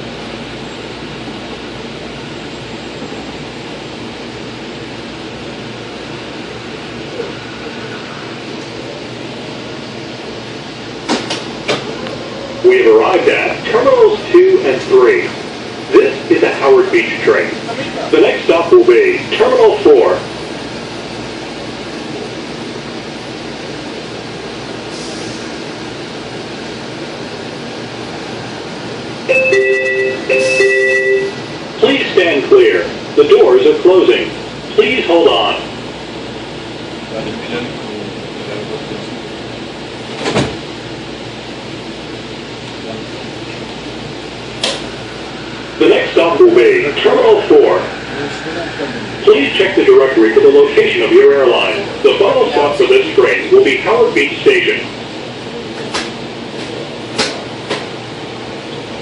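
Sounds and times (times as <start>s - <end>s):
train car running noise: 0.0s - 59.0s
two-note chime: 29.3s - 31.4s.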